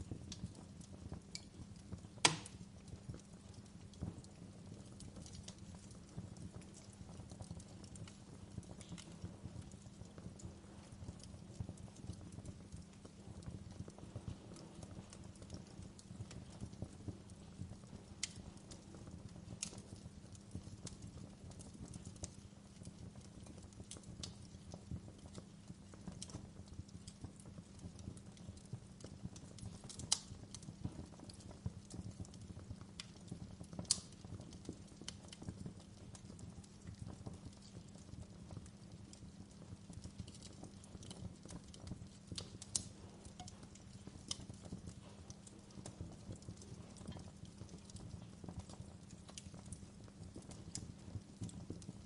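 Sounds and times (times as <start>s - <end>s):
low rumble of flame: 0.0s - 52.0s
wood fire crackling: 0.0s - 52.0s
sharp fire pops: 1.2s - 3.3s, 32.6s - 38.0s, 40.2s - 52.0s.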